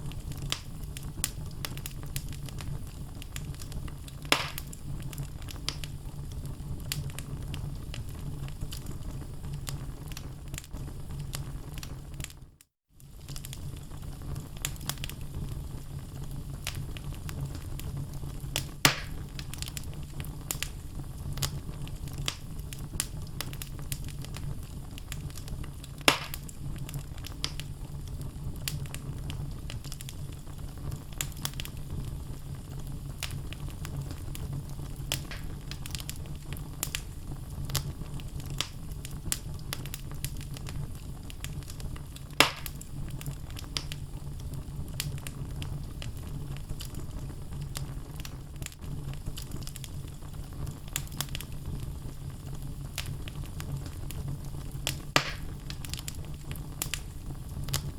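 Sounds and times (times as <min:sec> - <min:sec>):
low rumble of flame: 0:00.0 - 0:57.9
wood fire crackling: 0:00.0 - 0:57.9
loud sharp pops: 0:04.3 - 0:04.7, 0:18.8 - 0:19.2, 0:26.1 - 0:26.5, 0:35.1 - 0:35.6, 0:42.4 - 0:42.8, 0:55.2 - 0:55.7.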